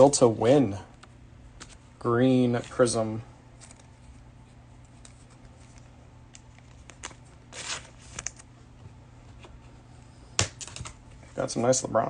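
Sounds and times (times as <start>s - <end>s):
trading cards being flipped: 3.5s - 8.5s.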